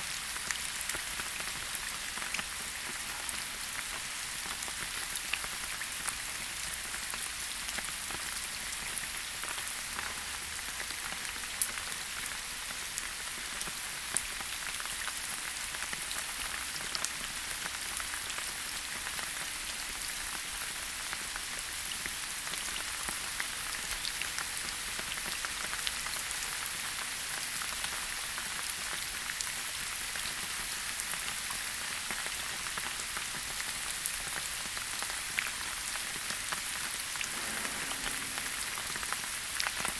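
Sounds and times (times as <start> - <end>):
rain falling in a forest: 0.0 - 39.9.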